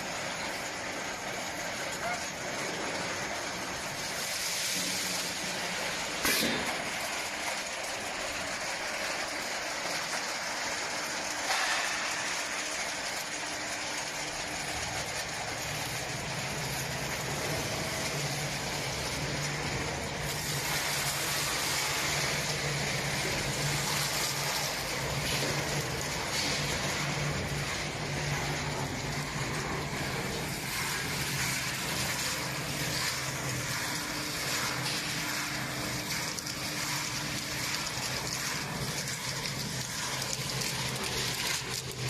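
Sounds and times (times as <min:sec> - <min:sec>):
machinery hiss and rattle: 0:01.6 - 0:42.0.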